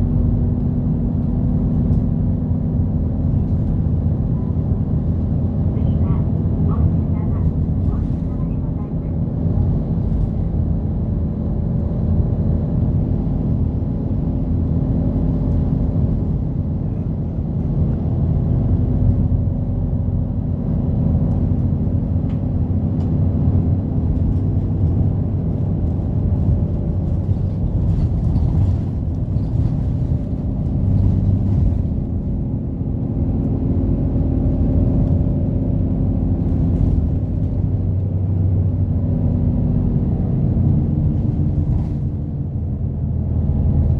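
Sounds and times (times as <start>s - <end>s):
bus engine running: 0.0s - 43.9s
road and drivetrain rumble: 0.0s - 43.9s.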